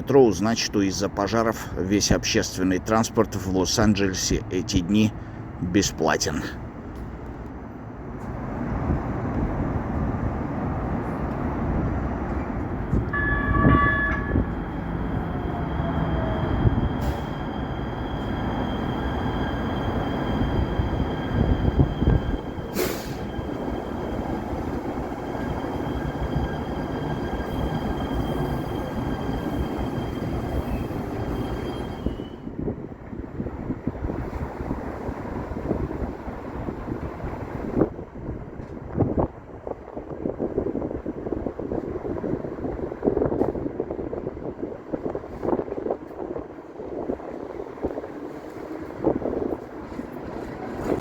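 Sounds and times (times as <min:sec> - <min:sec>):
train rumbling: 0:00.0 - 0:51.0
short pitched tone: 0:13.1 - 0:17.4.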